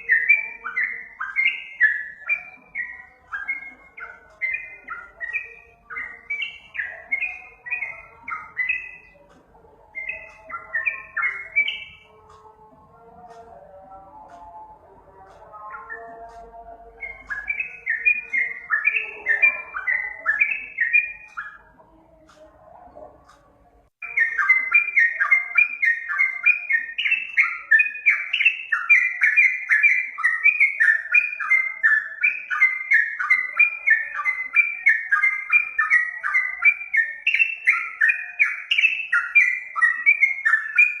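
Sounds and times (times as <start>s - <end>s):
bird chattering song: 0.0s - 41.0s.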